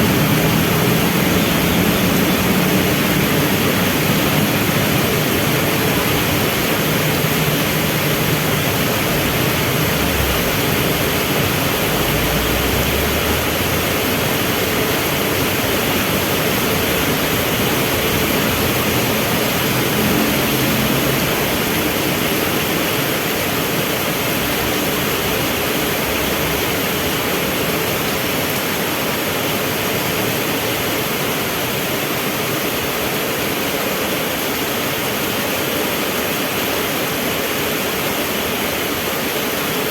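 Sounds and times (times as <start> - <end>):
low hum of vehicle engines: 0.0 - 28.0
heavy rain falling: 0.0 - 39.9.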